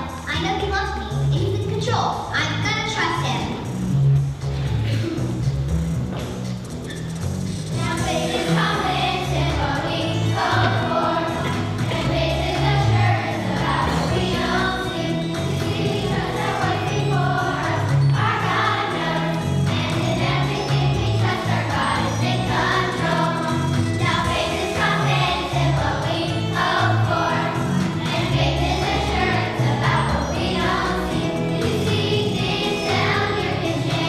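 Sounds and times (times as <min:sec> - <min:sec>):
instrumental accompaniment: 0:03.4 - 0:34.0
group of people singing: 0:08.0 - 0:34.0.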